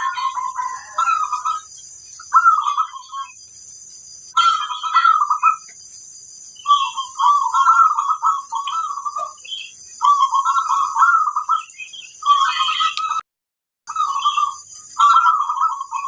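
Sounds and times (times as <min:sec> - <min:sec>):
dove cooing: 0:00.0 - 0:01.7, 0:02.3 - 0:03.4, 0:04.4 - 0:05.7, 0:06.6 - 0:13.0, 0:13.9 - 0:16.0.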